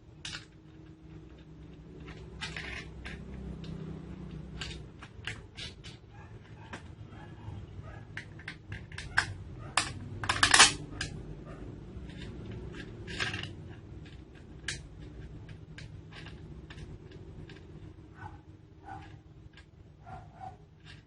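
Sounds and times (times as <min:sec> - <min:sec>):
metallic rattle: 0:00.0 - 0:06.8, 0:08.1 - 0:21.0
metal parts and tools clinking: 0:00.1 - 0:06.9, 0:08.1 - 0:11.3, 0:12.0 - 0:18.1.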